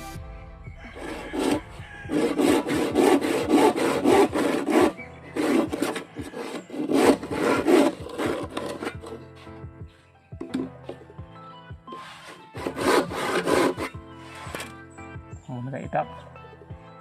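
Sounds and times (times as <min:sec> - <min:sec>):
hand saw cutting bamboo: 0:01.0 - 0:09.6, 0:11.9 - 0:14.8.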